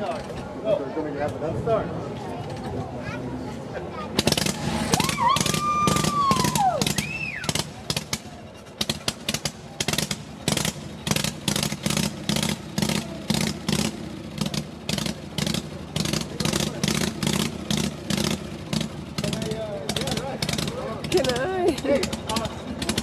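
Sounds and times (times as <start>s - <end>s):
whistle-like tone: 5.1s - 7.6s
motorcycle engine loping idle: 6.0s - 23.0s.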